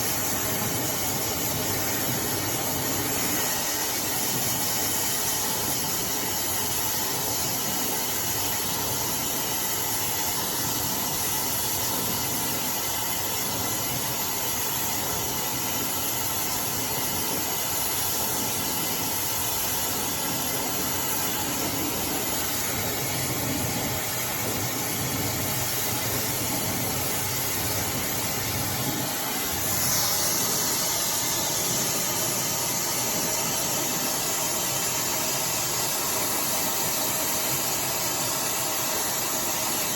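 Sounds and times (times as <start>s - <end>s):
hair dryer blowing: 0.0s - 6.3s, 17.3s - 39.9s.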